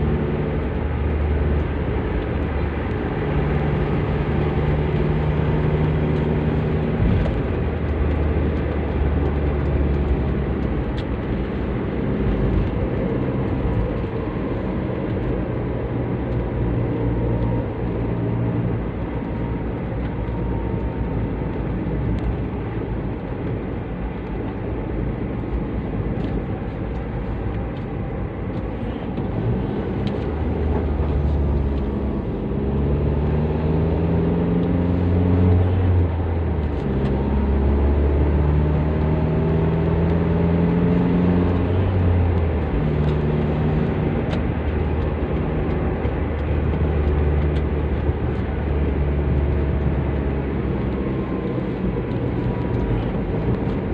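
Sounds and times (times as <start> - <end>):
deep exhaust drone: 0.0 - 53.9
road noise: 0.0 - 53.9
car engine revving: 26.3 - 53.9.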